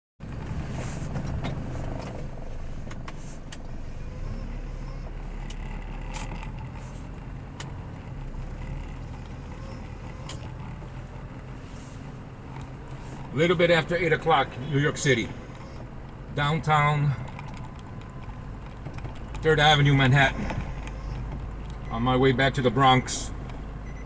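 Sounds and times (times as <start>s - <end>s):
city traffic rumble: 0.2s - 24.0s
sharp clicks: 17.2s - 21.9s.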